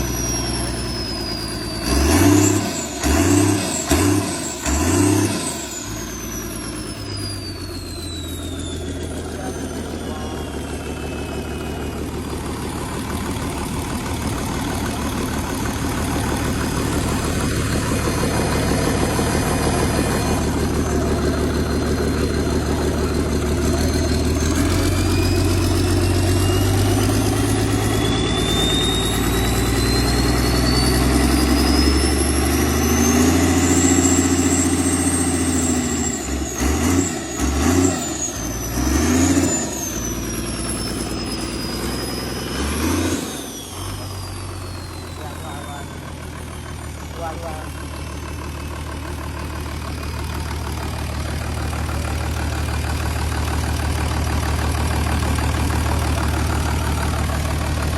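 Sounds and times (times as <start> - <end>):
engine running and revving: 0.0 - 57.9.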